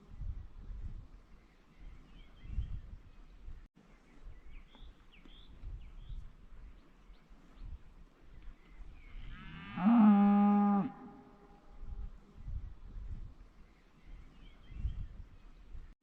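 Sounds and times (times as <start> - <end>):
cow mooing: 9.3 - 11.6.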